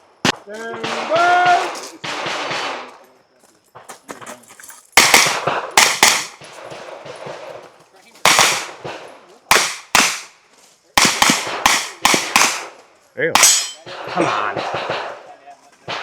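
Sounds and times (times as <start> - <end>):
pistol shots with echo: 0.2 - 3.0, 5.0 - 7.6, 8.2 - 10.4, 11.0 - 16.0.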